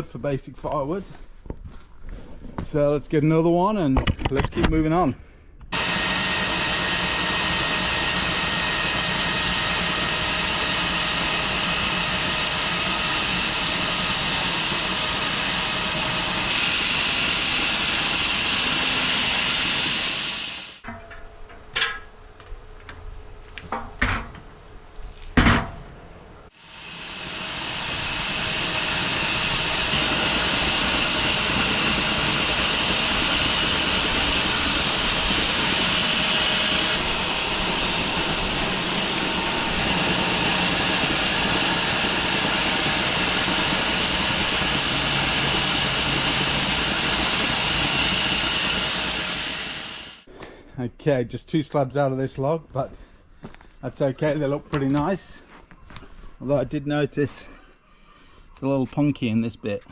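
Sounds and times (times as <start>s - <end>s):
bandsaw cutting log: 5.7s - 20.8s, 26.5s - 50.3s.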